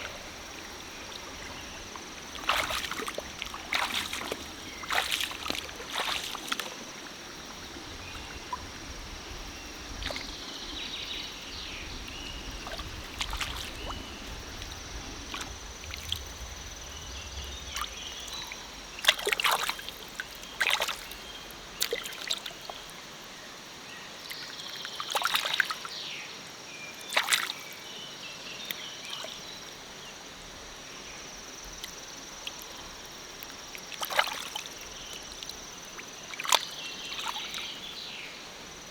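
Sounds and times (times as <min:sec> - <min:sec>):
sharp water splashes: 0:00.0 - 0:08.8, 0:09.9 - 0:10.9, 0:12.1 - 0:16.4, 0:17.5 - 0:22.8, 0:27.1 - 0:27.6, 0:33.4 - 0:37.9
stream water sloshing: 0:00.0 - 0:23.4, 0:24.2 - 0:26.0, 0:27.0 - 0:38.9.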